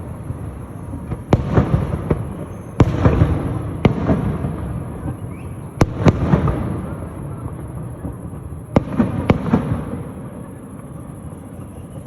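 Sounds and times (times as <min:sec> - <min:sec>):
fireworks bangs: 0:00.0 - 0:12.0
fireworks rumble and crackle: 0:00.0 - 0:12.0.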